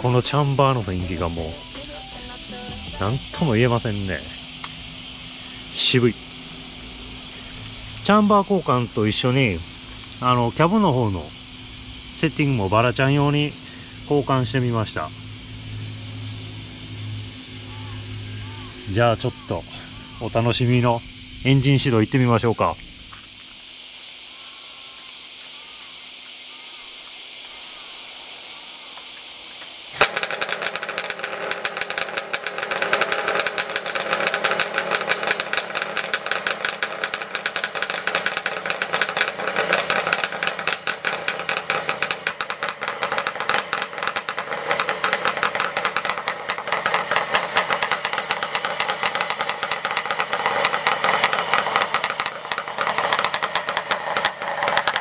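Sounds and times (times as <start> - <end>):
two-stroke motorcycle engine running: 0.0 - 12.2, 30.0 - 55.0.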